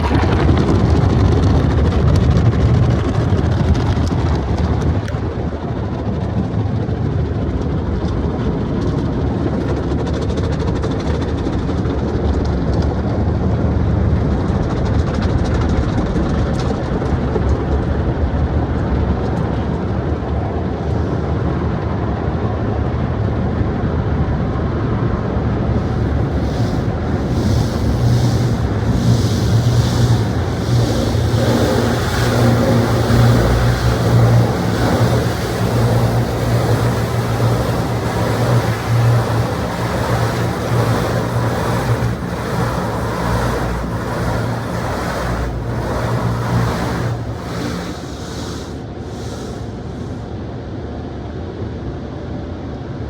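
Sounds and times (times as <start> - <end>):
car wash machinery rumbling: 0.0 - 4.1, 25.8 - 50.2
short bursts of hiss: 25.8 - 50.2.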